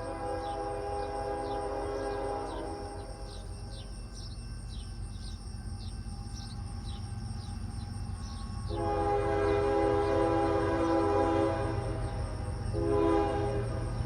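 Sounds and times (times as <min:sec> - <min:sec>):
locomotive horn chord: 0:00.0 - 0:03.5, 0:08.6 - 0:14.0
low train rumble: 0:00.0 - 0:14.0.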